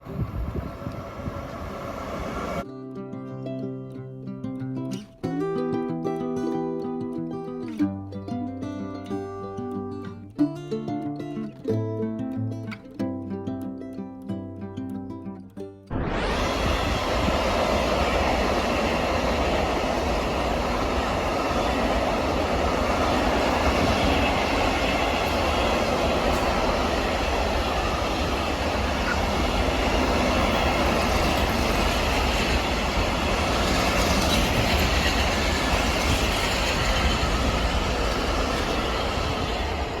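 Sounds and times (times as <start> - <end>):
freight train wheels rumbling: 0.0 - 2.6, 16.2 - 40.0.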